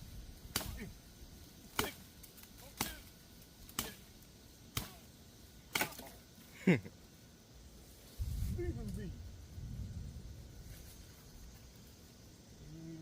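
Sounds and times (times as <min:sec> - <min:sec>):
sharp chopping strikes into vine: 0:00.5 - 0:00.9, 0:01.7 - 0:02.0, 0:02.6 - 0:03.1, 0:03.7 - 0:04.0, 0:04.7 - 0:05.0, 0:05.7 - 0:06.2.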